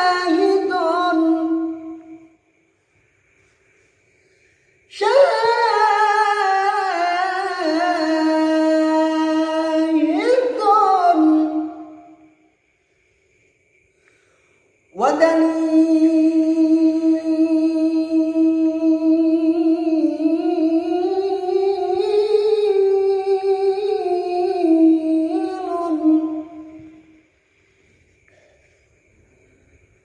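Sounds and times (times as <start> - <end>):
person singing wordless melody: 0.0 - 2.3, 4.9 - 12.2, 15.0 - 27.0.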